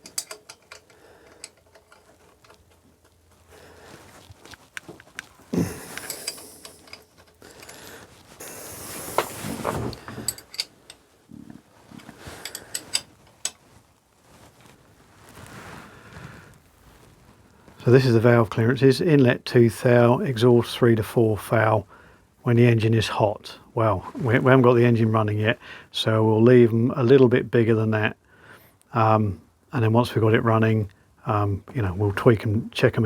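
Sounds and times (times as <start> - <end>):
metal tools clinking: 0.0 - 2.8, 5.6 - 7.9, 9.2 - 11.0, 12.2 - 13.6
scraping rustles: 0.0 - 17.9.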